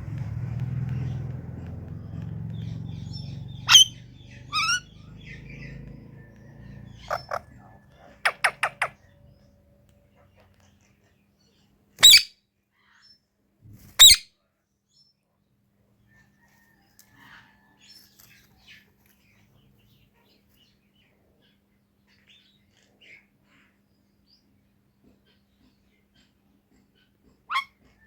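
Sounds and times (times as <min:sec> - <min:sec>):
parrot soft chirps: 0:02.0 - 0:05.9, 0:06.6 - 0:09.4, 0:27.5 - 0:27.8
parrot screeching: 0:03.7 - 0:04.9, 0:07.0 - 0:07.4, 0:27.5 - 0:27.7.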